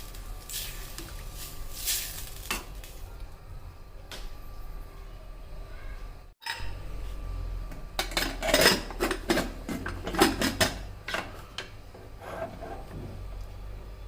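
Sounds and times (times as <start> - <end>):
metal utensils clinking on pot: 6.4 - 6.7, 8.0 - 11.3.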